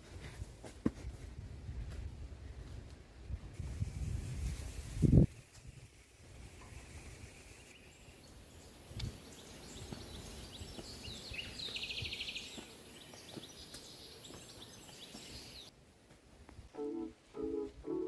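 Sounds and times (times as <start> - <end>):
steady high hiss: 3.5 - 15.7
small birds chirping: 7.0 - 15.7.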